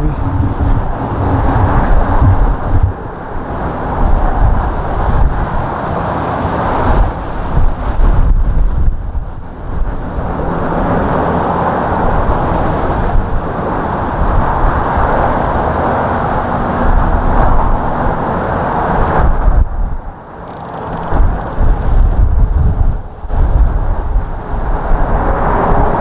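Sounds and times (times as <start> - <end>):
airplane engines drone: 0.0 - 26.0
wind rumbling on microphone: 0.0 - 26.0.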